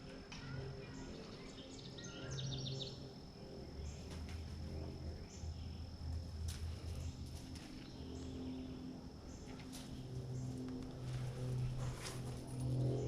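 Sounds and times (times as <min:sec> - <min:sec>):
low hum: 0:00.0 - 0:13.0
bird chirping: 0:00.4 - 0:06.0.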